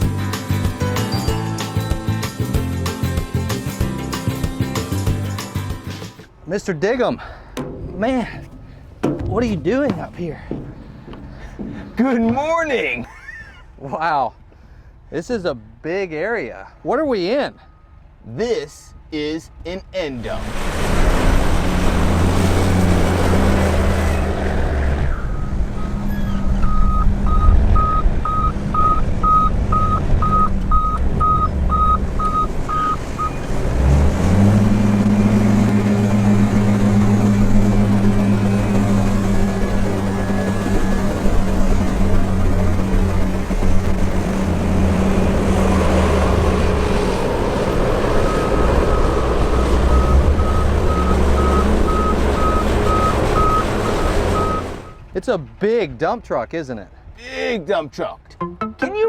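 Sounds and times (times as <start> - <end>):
truck engine running: 7.4 - 13.0, 25.4 - 55.0
reversing alarm beeping: 25.4 - 33.4, 48.3 - 55.0.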